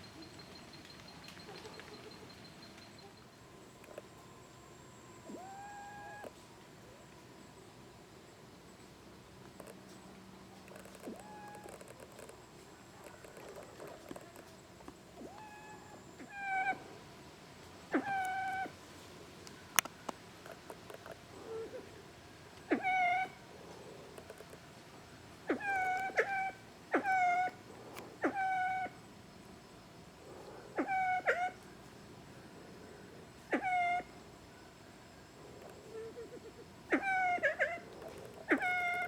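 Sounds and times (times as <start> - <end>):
pheasant mewing calls: 17.9 - 18.8, 25.4 - 29.0, 30.8 - 31.6, 33.5 - 34.1, 35.9 - 39.0.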